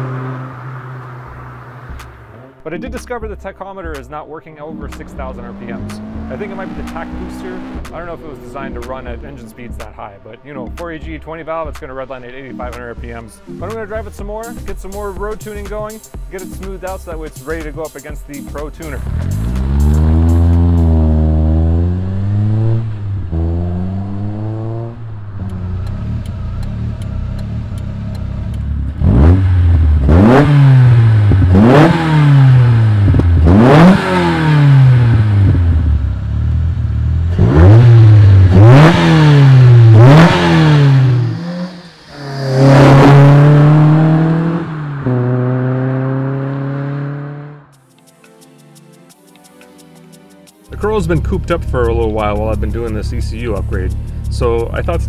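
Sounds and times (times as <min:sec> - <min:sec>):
car engine revving hard: 0:00.0 - 0:02.6, 0:05.0 - 0:08.8, 0:19.0 - 0:47.7.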